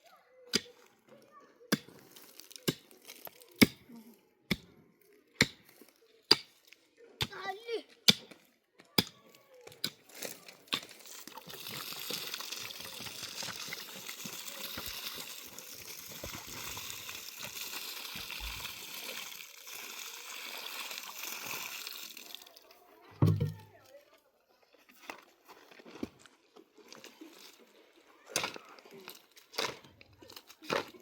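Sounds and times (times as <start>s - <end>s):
water running: 11.2s - 22.7s.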